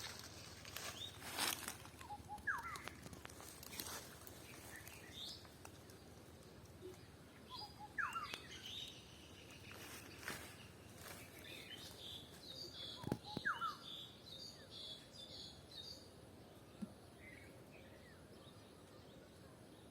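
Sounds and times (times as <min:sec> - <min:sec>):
footsteps: 0:00.0 - 0:02.1
birds chirping: 0:00.0 - 0:19.9
downward-sweeping bird calls: 0:02.0 - 0:03.0, 0:07.5 - 0:14.2.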